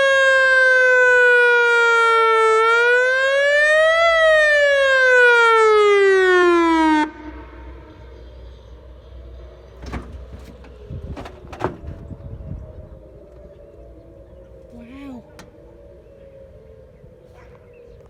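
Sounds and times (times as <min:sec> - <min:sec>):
warning siren wailing: 0:00.0 - 0:08.2, 0:11.9 - 0:18.0
distant siren: 0:00.0 - 0:18.0.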